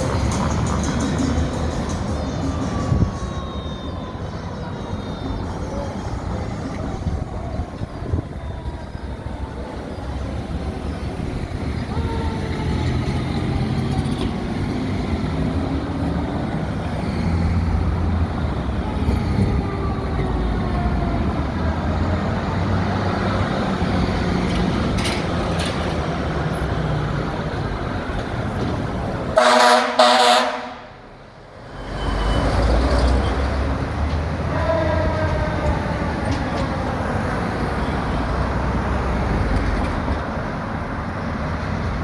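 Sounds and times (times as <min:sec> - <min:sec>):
engine and road noise: 0:00.0 - 0:42.0
fire engine siren wailing: 0:00.0 - 0:42.0
air horn blasts: 0:29.4 - 0:31.0.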